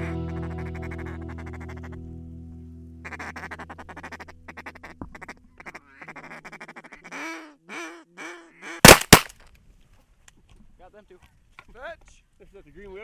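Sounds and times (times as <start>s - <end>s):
shotgun blast: 8.9s - 9.3s.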